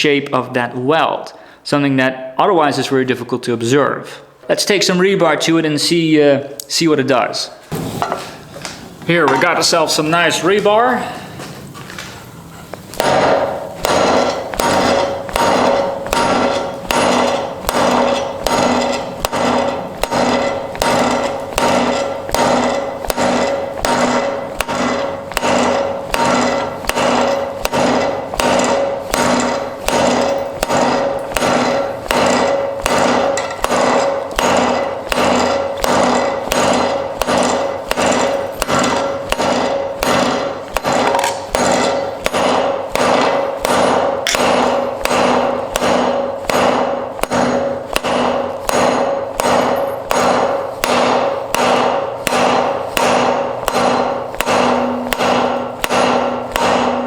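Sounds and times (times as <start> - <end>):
hammer ringing on anvil: 13.0 - 57.0.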